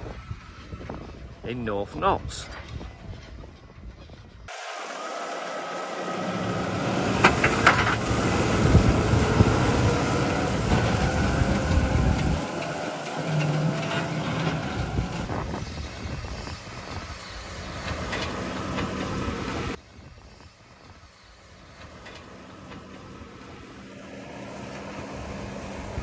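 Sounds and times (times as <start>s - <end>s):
tractor engine running: 4.5s - 19.8s, 21.5s - 26.0s.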